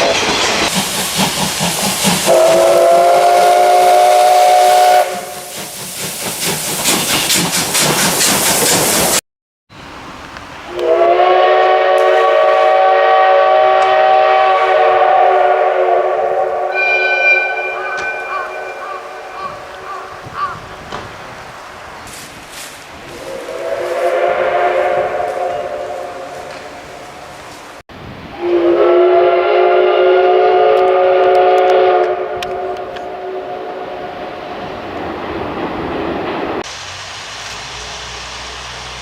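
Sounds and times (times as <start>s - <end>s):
loud steam hiss: 0.0s - 9.2s, 9.8s - 39.0s
steam locomotive whistle: 2.1s - 5.7s, 10.7s - 19.8s, 23.1s - 26.7s, 28.3s - 34.3s.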